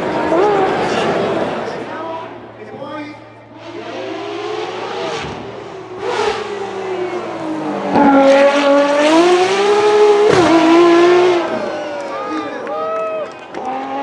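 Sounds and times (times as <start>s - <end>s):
car engine revving: 3.4s - 12.3s.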